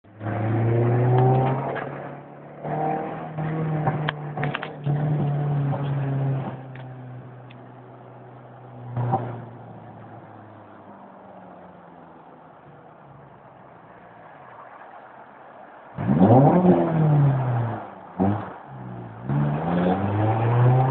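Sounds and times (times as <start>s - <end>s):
car engine accelerating: 0.1s - 20.9s
sharp engine rev: 16.0s - 20.9s.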